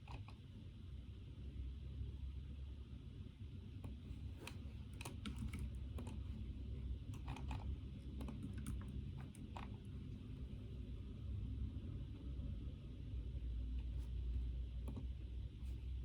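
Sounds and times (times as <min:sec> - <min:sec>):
steady low hum: 0:00.0 - 0:16.0
computer keyboard typing: 0:04.5 - 0:06.3, 0:07.1 - 0:09.8.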